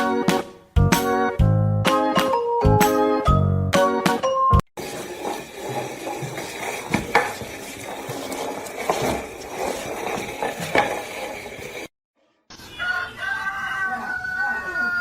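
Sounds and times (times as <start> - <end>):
objects clattering and scraping: 4.8 - 11.9.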